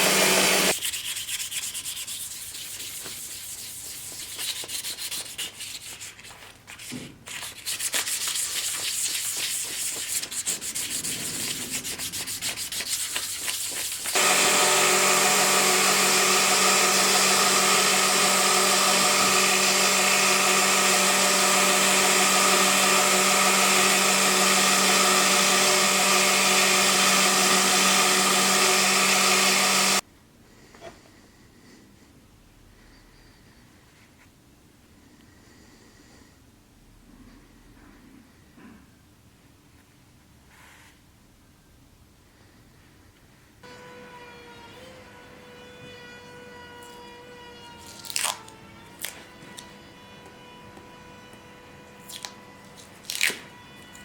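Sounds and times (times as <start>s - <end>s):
electric sanding machine running: 0.0s - 0.8s, 14.0s - 30.0s
hand sanding strokes: 0.0s - 30.0s.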